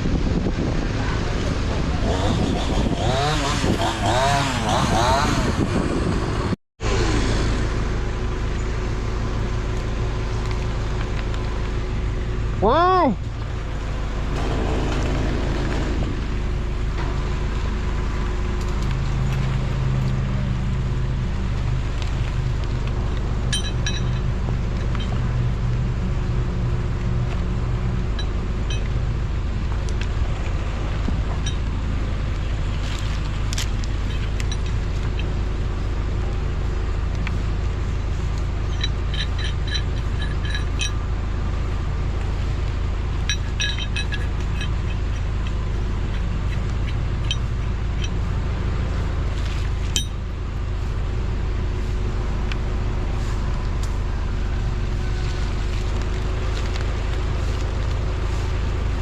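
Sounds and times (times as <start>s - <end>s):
wind buffeting microphone: 0.0s - 6.6s
light metallic clinks: 23.5s - 25.2s, 38.7s - 41.0s, 43.2s - 45.3s.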